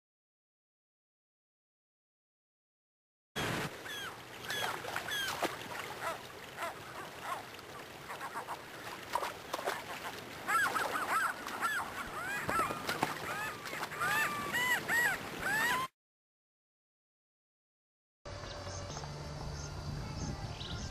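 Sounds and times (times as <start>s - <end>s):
flock of birds calling: 9.6s - 15.9s.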